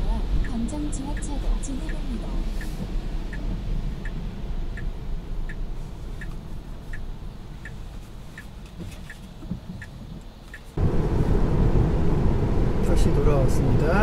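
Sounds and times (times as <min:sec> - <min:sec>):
turn signal ticking: 0:00.0 - 0:10.9
road rumble inside car: 0:00.0 - 0:14.0
loud driving noise: 0:10.7 - 0:14.0.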